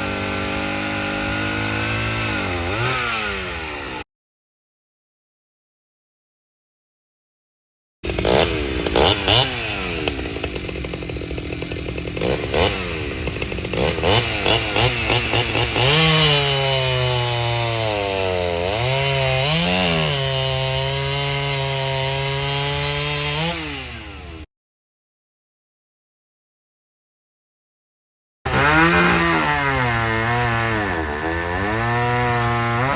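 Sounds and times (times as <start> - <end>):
two-stroke chainsaw running: 0.0 - 4.0, 8.0 - 24.5, 28.5 - 32.9.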